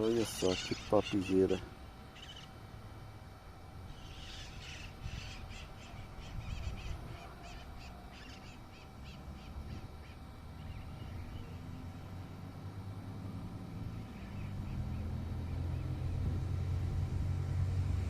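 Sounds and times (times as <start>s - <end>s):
flock of parakeets calling: 0.0s - 2.6s, 3.9s - 11.6s, 14.0s - 15.1s.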